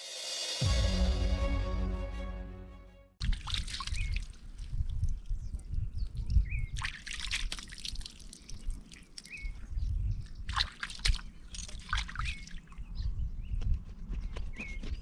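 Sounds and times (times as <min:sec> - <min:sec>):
water splashing and trickling: 0:03.2 - 0:12.9.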